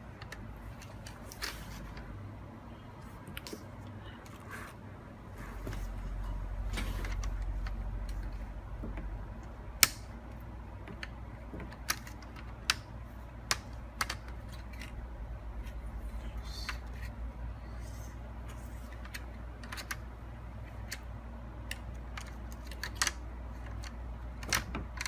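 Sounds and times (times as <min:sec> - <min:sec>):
low steady hum: 0:00.0 - 0:25.0
plastic laptop parts clicking: 0:07.0 - 0:15.0, 0:18.9 - 0:20.0, 0:20.7 - 0:25.0.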